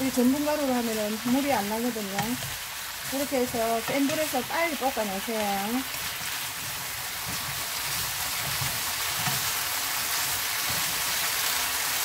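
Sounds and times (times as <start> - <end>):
food sizzling in a pan: 0.0 - 12.0
wooden spatula scraping and knocking: 1.2 - 5.0, 5.8 - 11.2.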